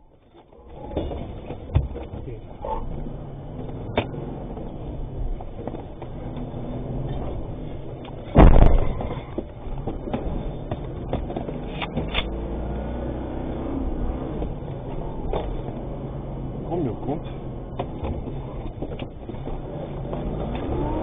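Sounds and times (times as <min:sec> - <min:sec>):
truck engine and road noise: 0:00.0 - 0:21.0
loud sharp bang: 0:08.4 - 0:09.3.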